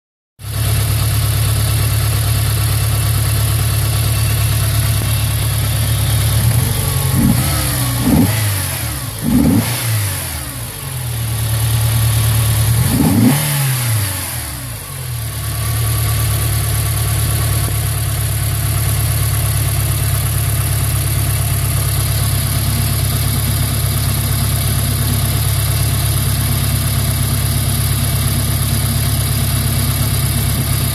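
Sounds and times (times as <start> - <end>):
car engine idling with misfire: 0.4 - 30.9
engine revving: 4.1 - 16.9.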